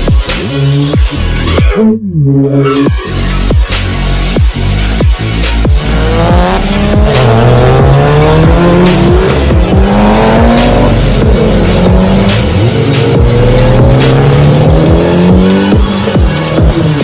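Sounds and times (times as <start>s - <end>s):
electronic music with kick drum: 0.0s - 17.0s
sports car engine revving: 3.8s - 17.0s.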